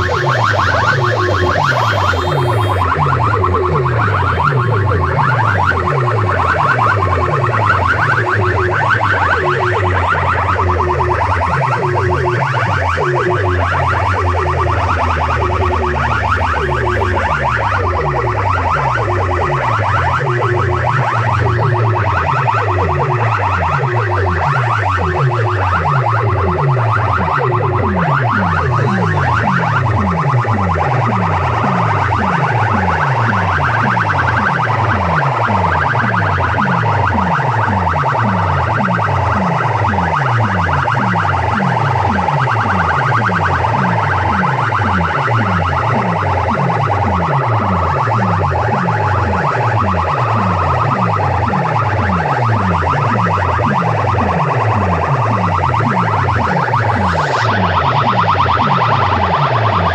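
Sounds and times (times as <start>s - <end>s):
electronic chirps: 0.0s - 18.4s.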